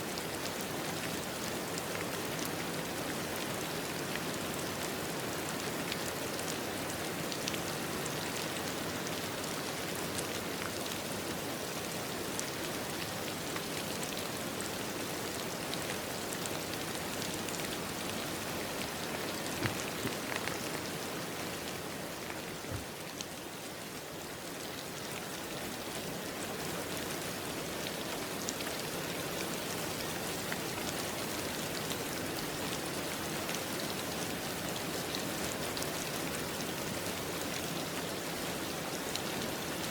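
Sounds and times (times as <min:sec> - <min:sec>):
steady rain falling: 0:00.0 - 0:39.9
raindrops ticking: 0:16.8 - 0:23.0.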